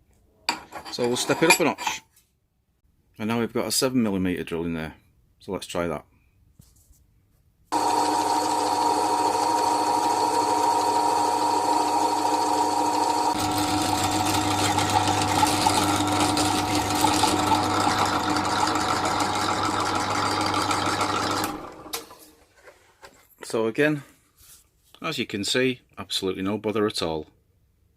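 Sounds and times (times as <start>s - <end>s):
drill motor humming: 7.7s - 22.0s
drill bit cutting steel: 7.8s - 21.8s.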